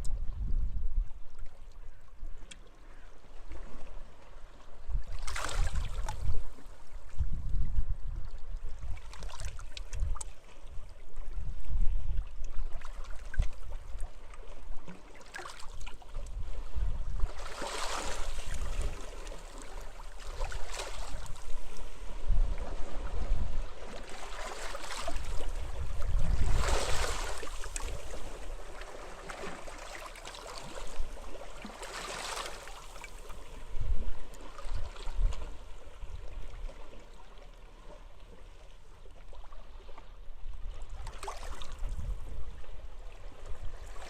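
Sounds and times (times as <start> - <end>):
sea waves washing ashore: 16.6 - 33.8
wind gusting on microphone: 25.2 - 28.2.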